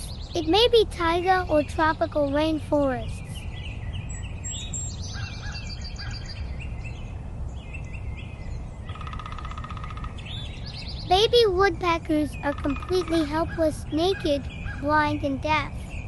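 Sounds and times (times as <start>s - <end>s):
birds chirping and whistling: 0.0s - 16.0s
bird rattling trill: 8.9s - 11.1s.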